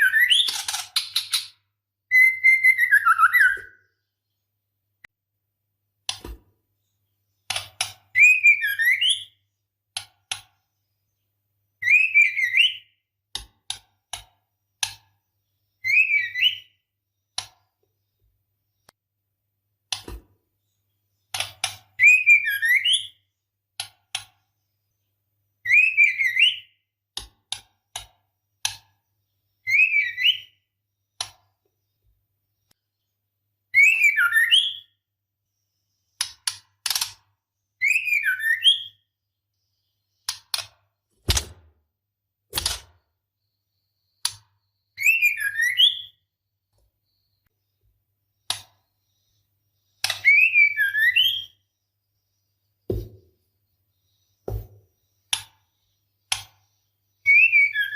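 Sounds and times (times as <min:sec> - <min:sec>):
bird warbling whistled calls: 0:02.1 - 0:03.8, 0:45.0 - 0:46.2, 0:50.1 - 0:51.6, 0:57.2 - 0:57.9.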